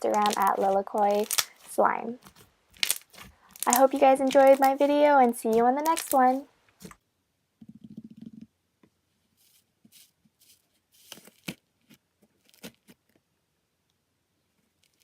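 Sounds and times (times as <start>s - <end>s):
slime squishing: 0.0s - 7.0s
soft crackles and pops: 0.0s - 7.0s, 11.0s - 15.0s.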